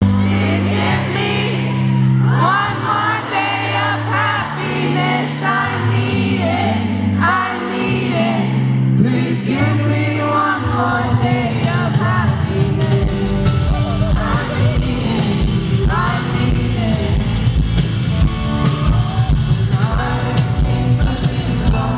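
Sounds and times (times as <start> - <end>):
band playing pop song: 0.0 - 21.9
person singing: 0.0 - 21.9
long held bass notes: 12.1 - 21.9.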